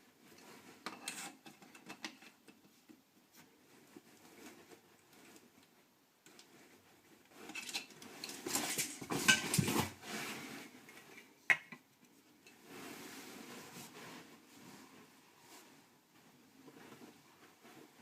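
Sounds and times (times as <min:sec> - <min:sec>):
hard objects clattering and scraping: 0:07.3 - 0:11.8.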